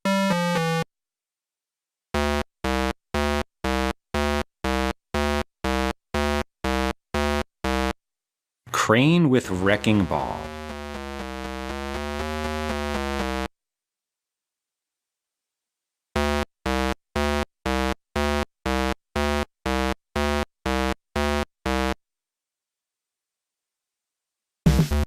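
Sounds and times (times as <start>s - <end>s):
steady synthesized tone: 9.6s - 13.5s.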